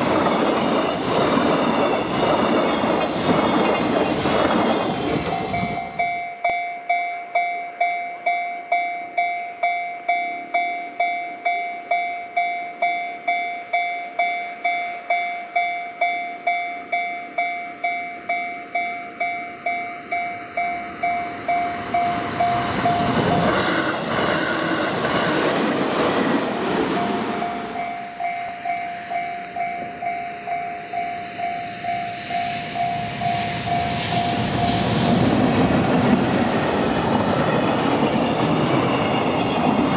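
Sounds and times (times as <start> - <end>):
train passing with rail noise: 0.0 - 39.9
level crossing bell ringing: 5.4 - 23.2, 27.0 - 34.3.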